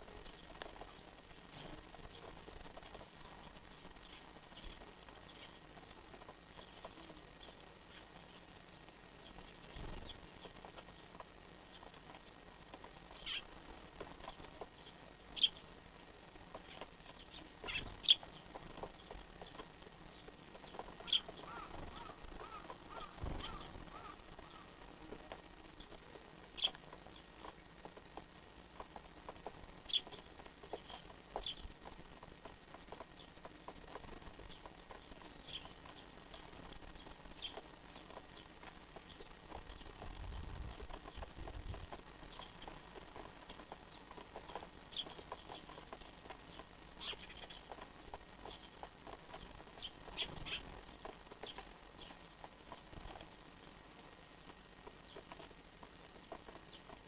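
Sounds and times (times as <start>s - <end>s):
sparrows chirping: 0.1s - 53.4s, 54.6s - 57.0s.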